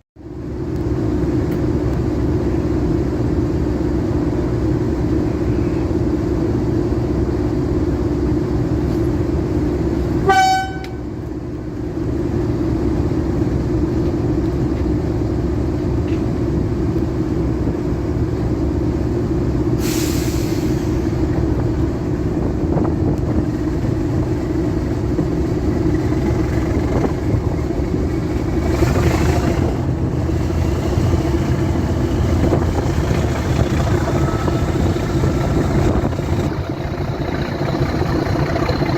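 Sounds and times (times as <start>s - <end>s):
diesel locomotive engine running: 0.2s - 38.9s
locomotive horn toot: 10.2s - 11.2s.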